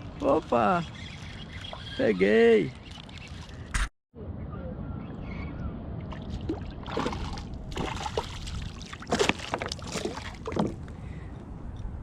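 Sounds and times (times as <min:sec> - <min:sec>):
rush of wind and water: 0:05.9 - 0:11.1
water splashing around a kayak: 0:06.1 - 0:10.9.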